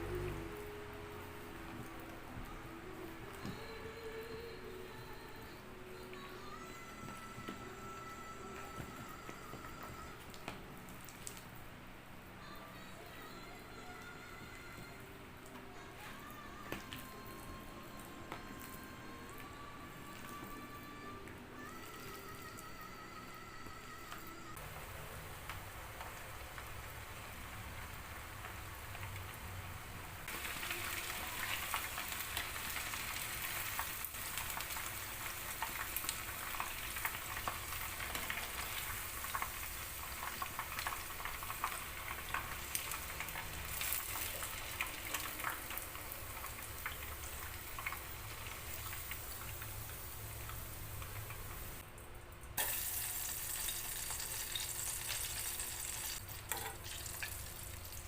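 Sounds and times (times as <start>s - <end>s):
chicken sizzling in a pan: 30.3s - 51.8s, 52.6s - 58.0s.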